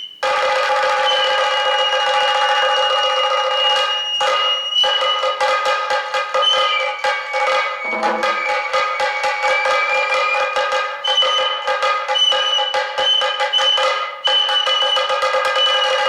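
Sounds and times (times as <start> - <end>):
high bamboo flute: 1.0 - 16.0
pitched drone: 7.8 - 8.7
rapid drum strokes: 7.8 - 9.2.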